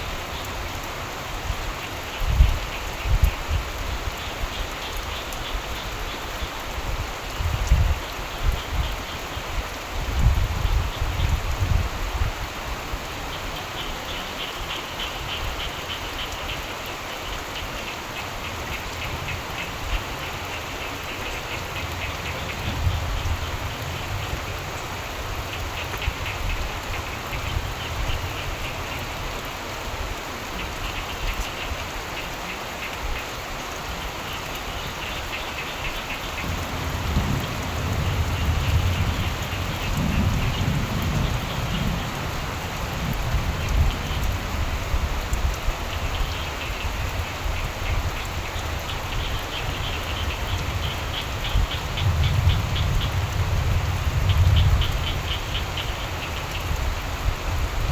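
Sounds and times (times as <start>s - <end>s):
steady rain falling: 0.0s - 57.9s
frogs calling in trills: 13.2s - 29.4s, 30.5s - 57.2s
distant thunder rumbling: 36.2s - 45.1s.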